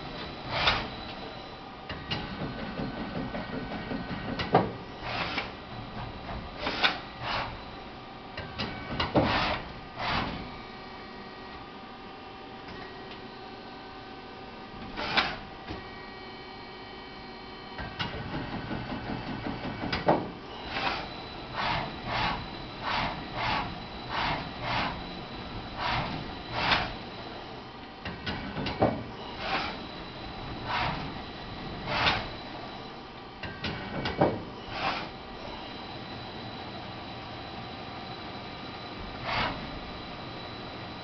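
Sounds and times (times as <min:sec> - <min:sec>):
lathe drives whining: 0:20.5 - 0:41.0.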